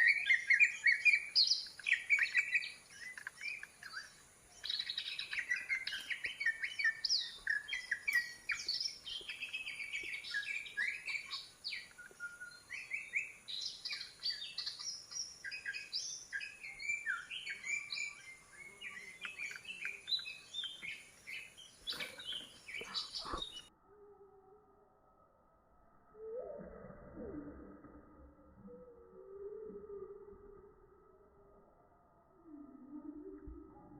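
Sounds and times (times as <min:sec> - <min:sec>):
songbirds chirping and trilling: 0:00.0 - 0:23.9.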